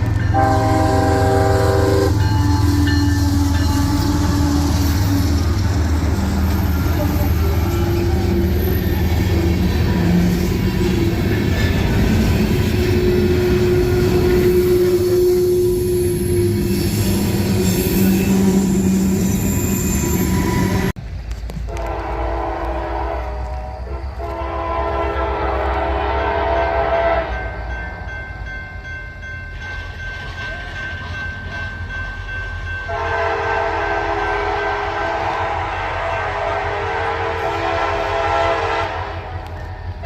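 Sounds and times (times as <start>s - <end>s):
freight train rolling past: 0.0s - 40.0s
locomotive air horn: 0.3s - 11.2s, 12.6s - 20.9s, 21.7s - 27.6s, 32.9s - 39.6s.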